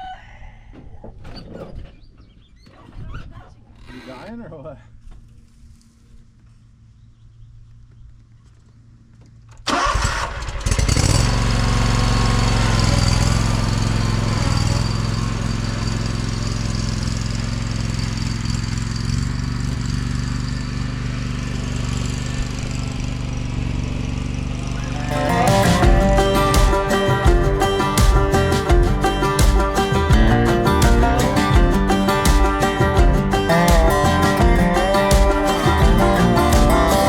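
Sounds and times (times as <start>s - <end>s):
engine starting and running: 9.4s - 37.0s.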